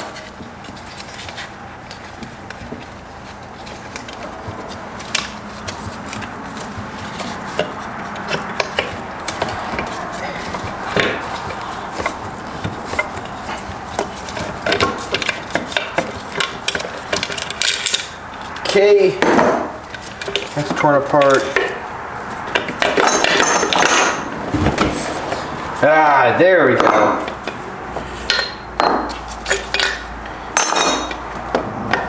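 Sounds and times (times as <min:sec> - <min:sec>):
metal clicks and knocks: 0:03.9 - 0:21.8, 0:22.4 - 0:25.5.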